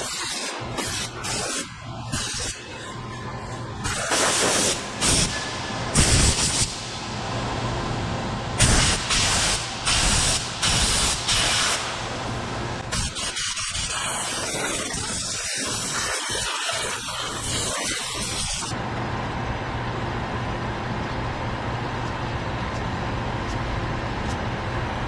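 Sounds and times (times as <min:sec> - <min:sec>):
low machine hum: 0:00.6 - 0:13.0, 0:18.7 - 0:25.0
spraying hiss: 0:03.8 - 0:05.4, 0:06.0 - 0:06.8, 0:08.6 - 0:12.0.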